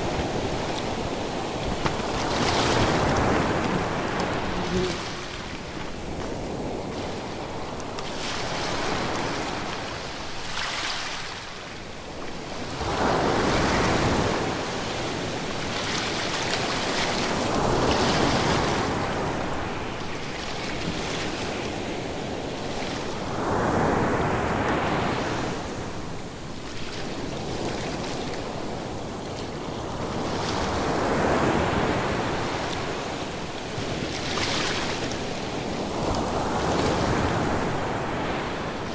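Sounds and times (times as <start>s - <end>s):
ocean waves breaking ashore: 0.0s - 7.6s.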